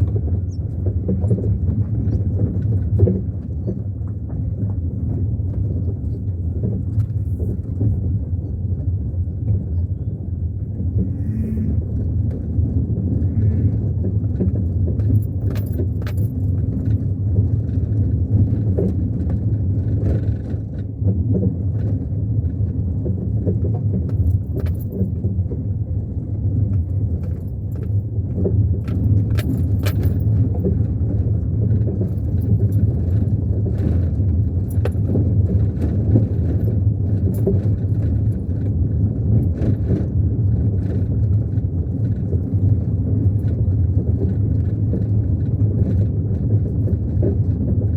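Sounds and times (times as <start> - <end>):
car road and engine rumble: 0.0 - 47.9
jangling rattling clicks: 15.0 - 17.1, 24.1 - 25.3, 26.8 - 28.0, 28.8 - 30.7, 34.6 - 38.7.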